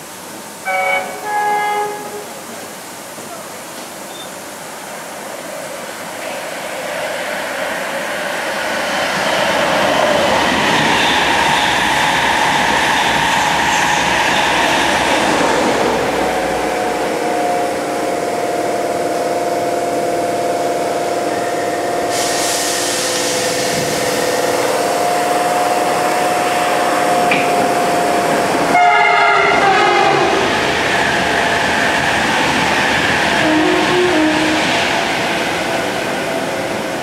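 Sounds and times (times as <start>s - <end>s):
express train rushing past: 0.0s - 37.0s
hiss: 22.0s - 26.0s.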